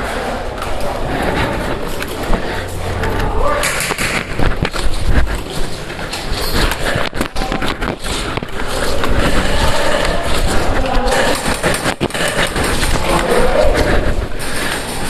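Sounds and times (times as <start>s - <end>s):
loud rustling and rumble: 0.0s - 15.0s
sharp clicks and knocks: 1.9s - 13.5s.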